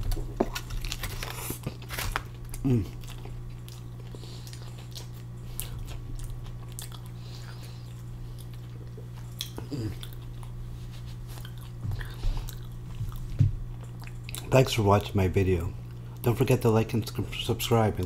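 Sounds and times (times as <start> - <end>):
person chewing food: 0.0 - 14.5
steady low hum: 0.0 - 18.0
person humming mm: 2.6 - 3.0, 9.6 - 10.1.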